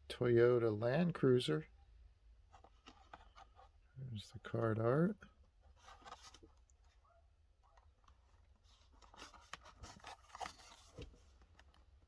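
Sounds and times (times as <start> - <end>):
plastic packaging rustling: 8.5 - 12.0.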